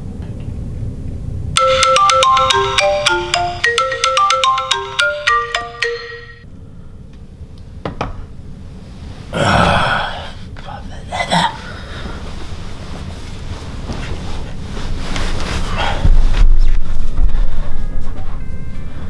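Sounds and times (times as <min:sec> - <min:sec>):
phone ringtone melody: 0:01.6 - 0:06.4.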